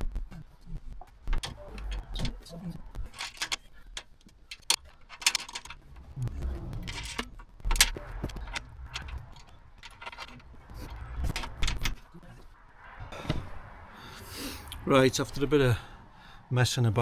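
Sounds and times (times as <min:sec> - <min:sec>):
metal clicks and rattles: 0:01.3 - 0:02.4, 0:03.0 - 0:06.2, 0:06.8 - 0:12.0.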